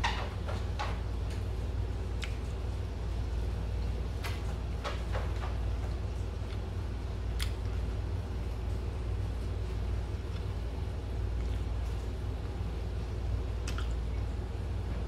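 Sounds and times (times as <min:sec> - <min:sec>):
steady low hum: 0:00.0 - 0:15.0
wet chewing clicks: 0:02.2 - 0:02.4, 0:07.3 - 0:07.8, 0:13.6 - 0:14.3.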